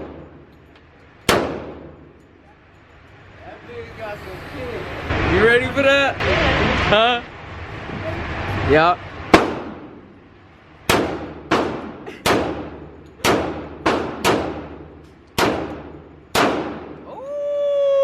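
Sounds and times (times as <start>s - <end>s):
pistol shots echoing: 1.3s - 2.1s, 10.9s - 17.0s.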